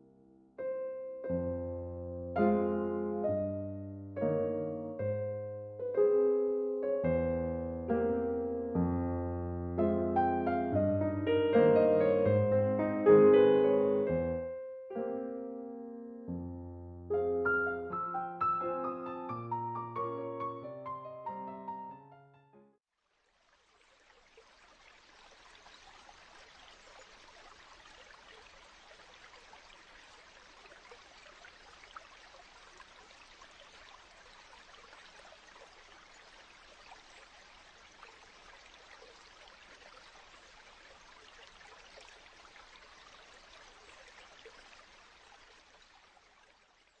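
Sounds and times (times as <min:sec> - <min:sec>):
faint creek rushing: 0:23.0 - 0:47.0.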